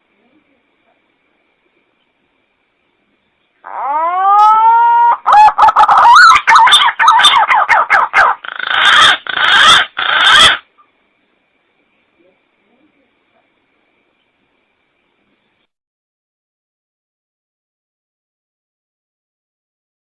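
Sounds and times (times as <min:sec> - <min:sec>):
pigeon lure call whistling: 0:03.9 - 0:10.6.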